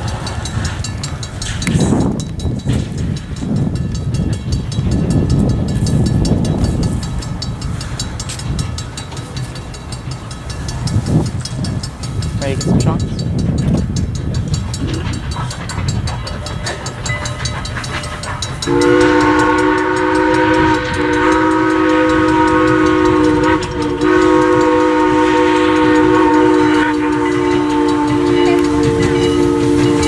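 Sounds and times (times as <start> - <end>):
train rumbling: 0.0 - 30.0
steam whistle chord: 16.7 - 30.0.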